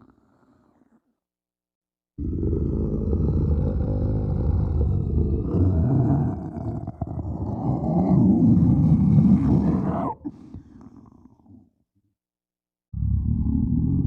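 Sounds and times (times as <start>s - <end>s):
deep rough monster growl: 2.2s - 10.3s, 13.0s - 14.0s.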